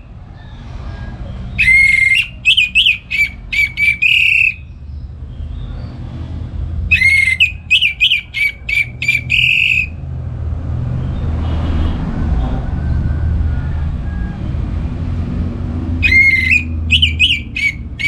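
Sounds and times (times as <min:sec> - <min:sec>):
thrush singing whistled notes: 0:01.6 - 0:04.7, 0:06.9 - 0:10.0, 0:16.0 - 0:18.0.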